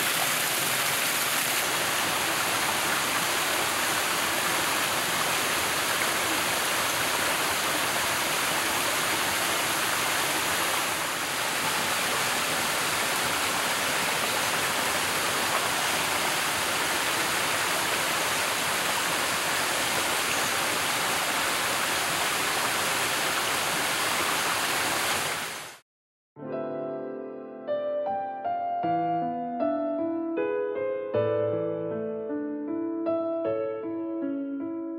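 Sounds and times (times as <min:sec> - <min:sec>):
waterfall rushing: 0:00.0 - 0:25.8.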